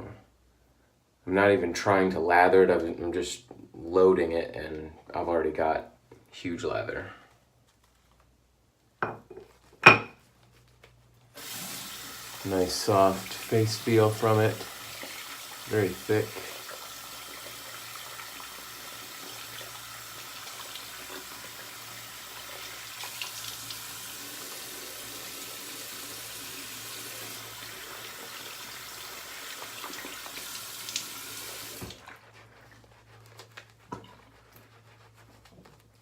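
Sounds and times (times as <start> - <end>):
tap water running into sink: 11.4 - 32.0.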